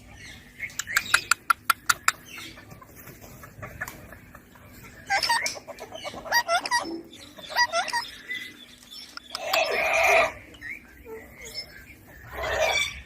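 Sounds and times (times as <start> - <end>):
parakeet sharp clicking calls: 0.6 - 2.4, 9.0 - 10.1
parakeet chattering calls: 5.1 - 8.5, 9.1 - 10.4.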